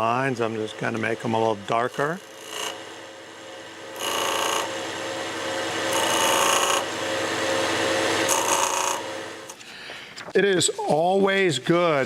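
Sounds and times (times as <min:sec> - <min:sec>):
wood lathe humming: 0:00.0 - 0:09.6.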